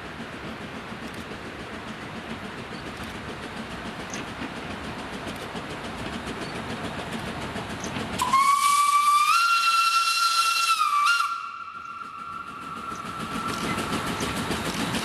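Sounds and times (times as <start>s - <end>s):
train rumbling: 0.0s - 15.0s
steam whistle blast: 8.2s - 13.4s.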